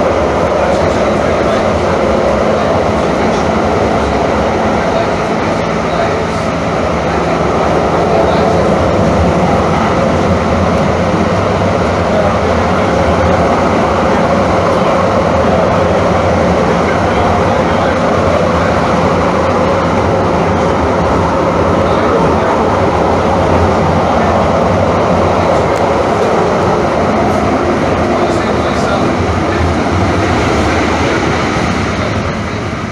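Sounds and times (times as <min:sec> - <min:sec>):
traction motors humming: 0:00.0 - 0:32.9
train wheels rumbling on track: 0:00.0 - 0:32.9.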